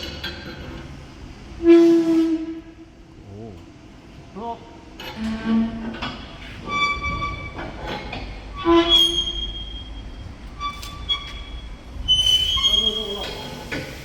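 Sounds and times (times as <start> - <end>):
steel cargo box squealing: 6.6 - 13.6.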